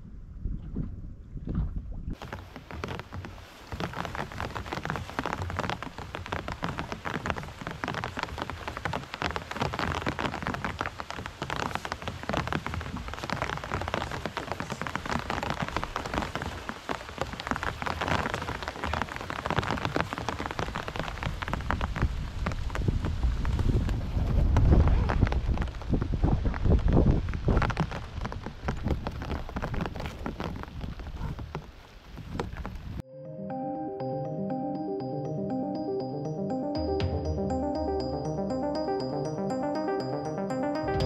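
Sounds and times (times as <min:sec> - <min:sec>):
rain falling on boat and lake: 0:02.2 - 0:33.0.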